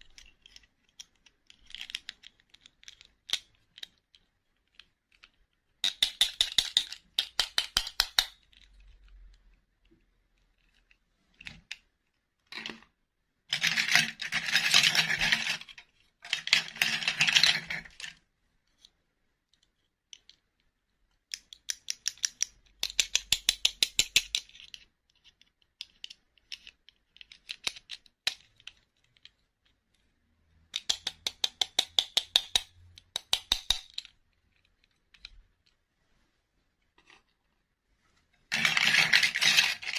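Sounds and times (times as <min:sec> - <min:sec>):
toy gears ratcheting: 0:38.5 - 0:39.9.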